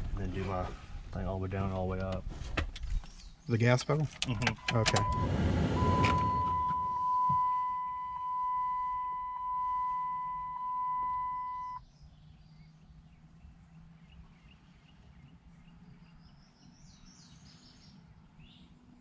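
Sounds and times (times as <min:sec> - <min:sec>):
dashboard warning tone: 0:04.4 - 0:11.8.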